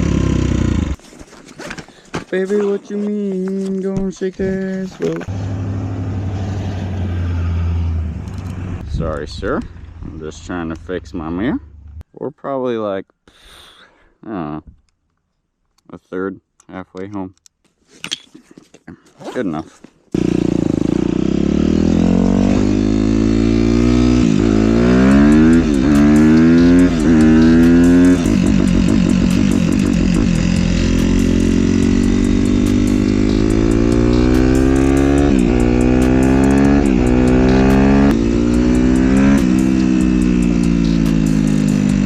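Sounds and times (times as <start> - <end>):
motorcycle engine shifting gears: 0.0 - 1.0, 4.6 - 12.0, 20.2 - 42.0.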